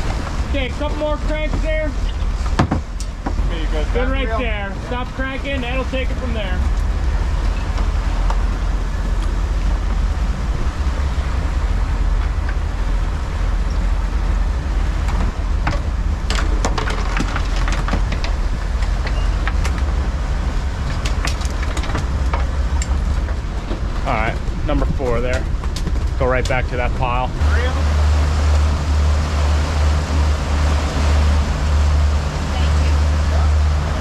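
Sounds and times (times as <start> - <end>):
boat engine low rumble: 0.0 - 34.0
sharp knocks and clatters: 1.5 - 3.5, 15.0 - 24.6, 25.2 - 26.6.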